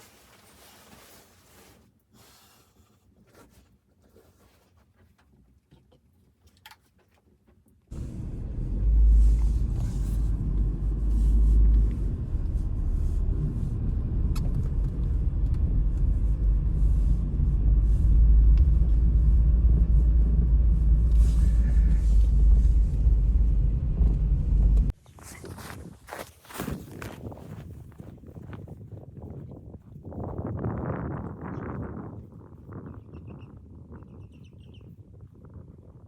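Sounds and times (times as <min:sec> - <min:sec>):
wind buffeting microphone: 0:07.9 - 0:25.0, 0:25.6 - 0:36.0.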